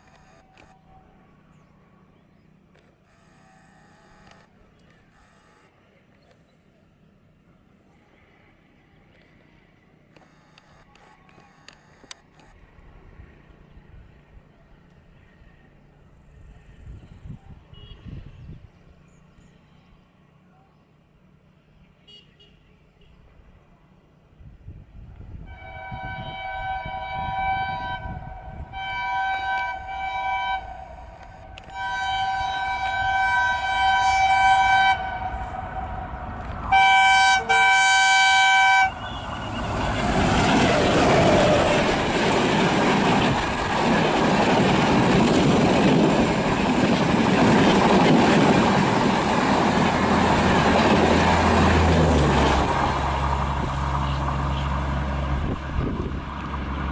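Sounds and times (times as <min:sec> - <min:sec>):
locomotive horn blasts: 0:25.4 - 0:40.0
train rushing past: 0:25.4 - 0:56.9
diesel engine rumble: 0:26.0 - 0:56.9.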